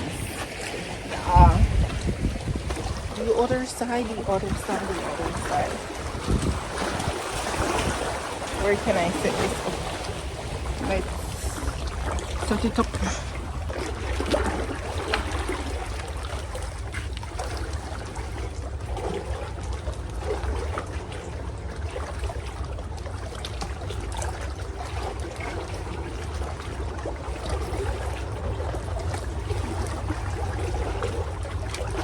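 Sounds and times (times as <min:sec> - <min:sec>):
constant low rumble: 0:00.0 - 0:32.0
water trickling and lapping: 0:00.0 - 0:32.0.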